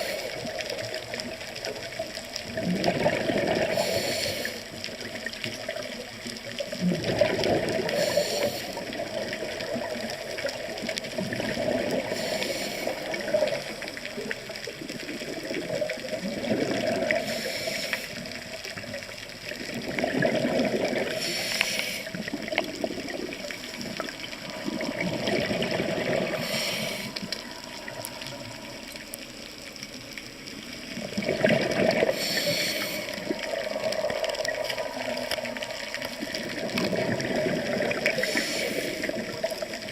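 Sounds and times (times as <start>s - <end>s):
bubbling exhalations underwater: 2.4s - 4.0s, 6.7s - 8.2s, 8.8s - 12.2s, 15.0s - 17.3s, 19.5s - 21.4s, 22.1s - 28.9s, 30.8s - 39.9s
regulator inhalation hisses: 3.7s - 4.7s, 7.9s - 8.8s, 12.1s - 13.3s, 17.1s - 18.2s, 21.1s - 22.2s, 26.3s - 29.0s, 32.1s - 33.5s, 38.0s - 39.2s.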